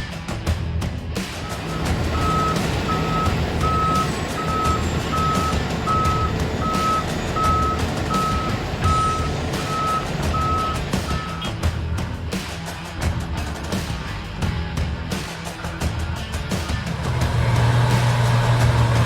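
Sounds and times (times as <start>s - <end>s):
diesel engine rumble: 1.1s - 12.3s, 15.8s - 19.0s
truck reversing alarm beeping: 1.4s - 11.6s.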